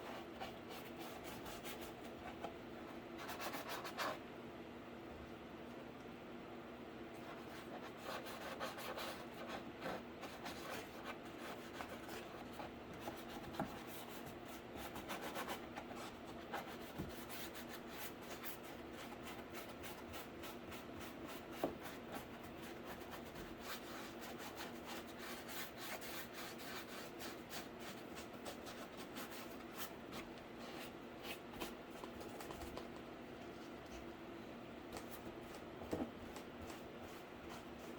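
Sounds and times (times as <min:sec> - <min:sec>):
faint steady hum: 0:00.0 - 0:37.9
paintbrush scratching on cardboard: 0:07.3 - 0:32.6.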